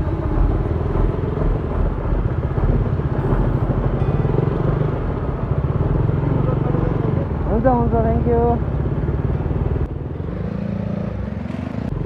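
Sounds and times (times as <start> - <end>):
motorcycle engine running at low revs: 0.0 - 12.0.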